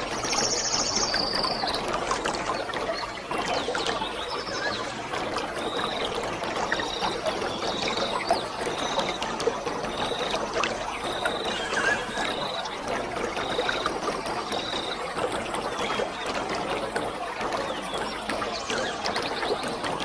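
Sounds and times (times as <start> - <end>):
waterfall splashing: 9.2 - 15.1.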